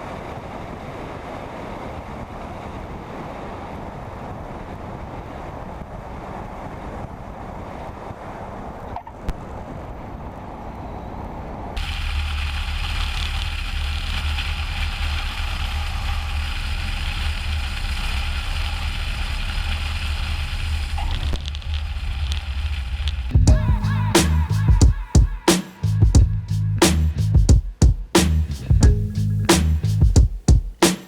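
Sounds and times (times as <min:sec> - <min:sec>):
airflow noise: 0:23.4 - 0:31.0.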